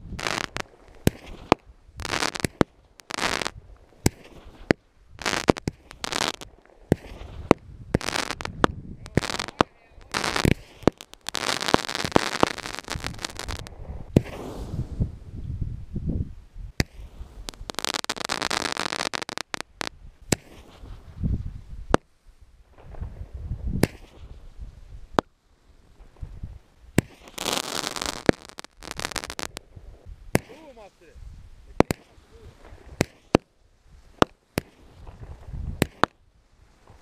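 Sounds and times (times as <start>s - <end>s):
firework bangs: 0.0s - 15.2s, 16.8s - 21.1s, 22.7s - 24.5s, 27.0s - 29.7s, 30.3s - 30.9s, 31.8s - 33.5s, 34.1s - 36.2s
firework crackling: 0.0s - 15.4s, 16.8s - 31.1s, 31.7s - 37.0s.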